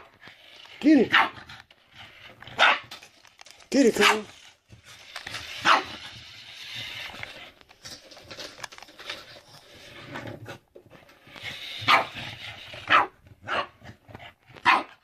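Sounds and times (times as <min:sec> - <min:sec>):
dog barking: 0:01.1 - 0:01.4, 0:02.6 - 0:02.9, 0:04.0 - 0:04.3, 0:05.6 - 0:06.0, 0:11.9 - 0:12.1, 0:12.9 - 0:13.8, 0:14.6 - 0:15.0.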